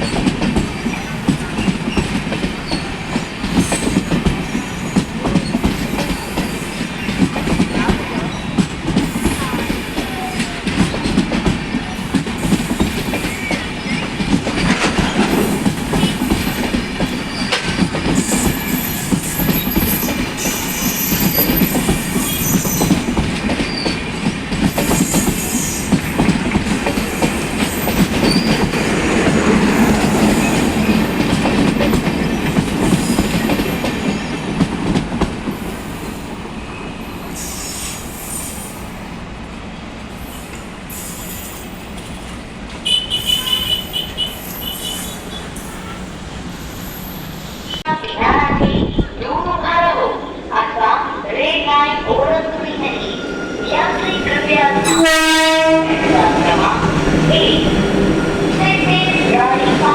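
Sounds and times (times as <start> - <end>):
train coaches rumbling: 0.0 - 59.9
high wheel squeal: 17.1 - 17.6, 18.2 - 23.0, 35.9 - 39.1, 40.2 - 41.9, 43.0 - 47.8.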